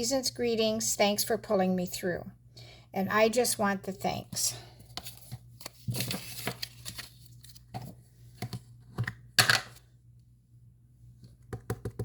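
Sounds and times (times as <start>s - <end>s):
paper rustling: 4.9s - 8.0s.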